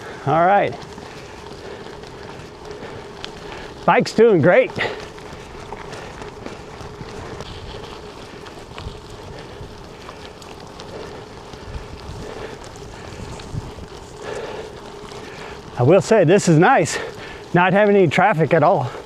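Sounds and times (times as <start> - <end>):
bike tyres crunching on gravel: 0.0 - 19.0
wind noise on microphone: 11.6 - 14.6.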